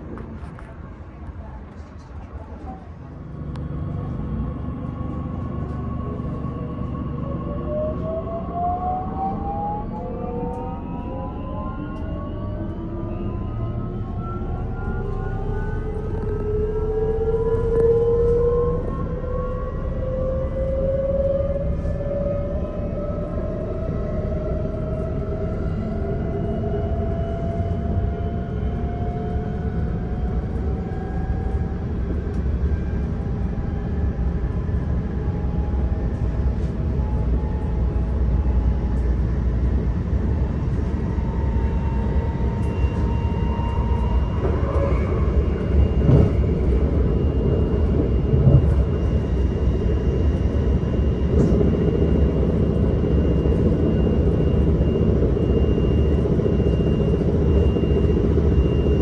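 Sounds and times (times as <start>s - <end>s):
wheels rumbling on rails: 0.0s - 59.0s
electric train drive whine: 2.9s - 59.0s.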